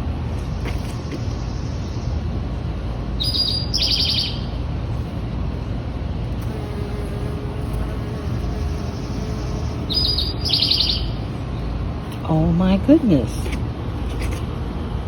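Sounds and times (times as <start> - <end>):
low rumble outdoors: 0.0 - 15.0
songbird trill: 3.2 - 4.5, 8.5 - 11.4
bee buzzing: 5.0 - 5.3, 6.2 - 12.3.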